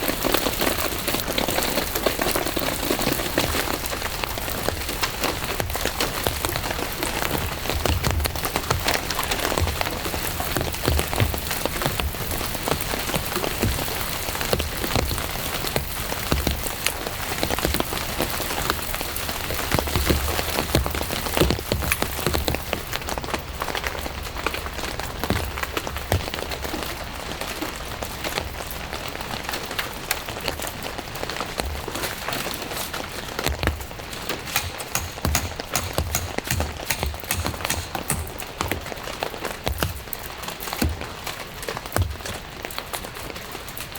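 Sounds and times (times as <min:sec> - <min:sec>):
raindrops striking a surface: 0:00.0 - 0:43.9.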